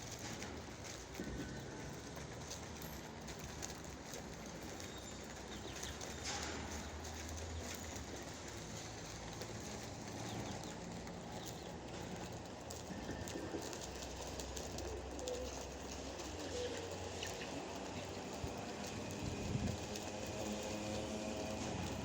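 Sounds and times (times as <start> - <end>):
pigeons cooing: 9.3 - 22.0.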